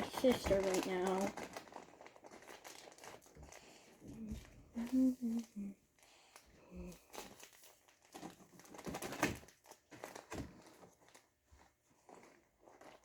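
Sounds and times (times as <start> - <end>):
slime clicking and crackling: 0.0 - 3.8.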